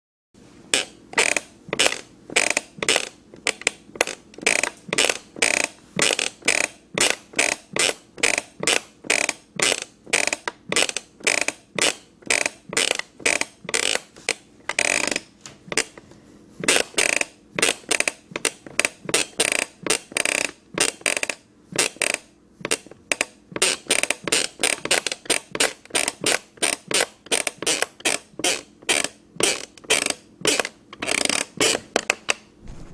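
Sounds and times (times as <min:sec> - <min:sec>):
wooden stairs creaking: 0:32.6 - 0:32.9.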